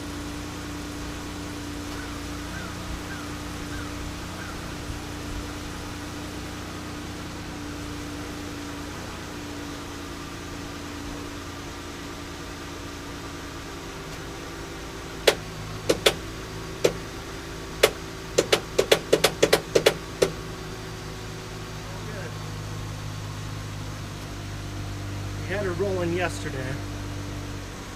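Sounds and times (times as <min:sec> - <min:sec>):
sharp knocks: 0:15.2 - 0:16.2, 0:16.8 - 0:17.0, 0:17.8 - 0:20.4.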